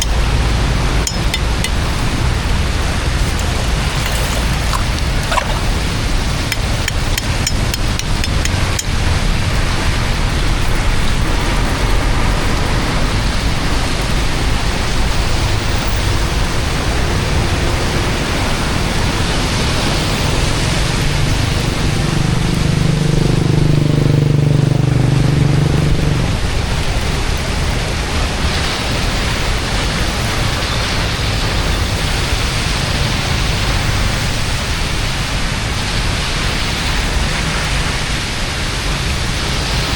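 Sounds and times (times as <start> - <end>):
floodwater flowing: 0.0 - 10.8
rain rushing: 0.0 - 15.5.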